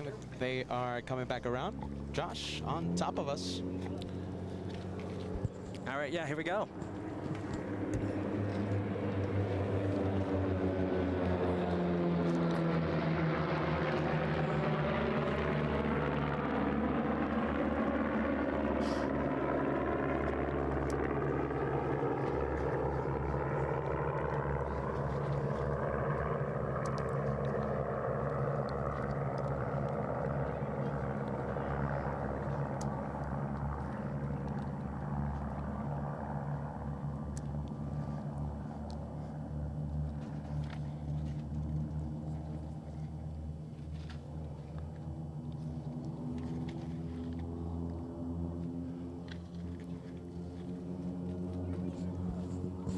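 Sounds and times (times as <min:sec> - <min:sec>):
propeller aircraft engine drone: 0:00.0 - 0:52.9.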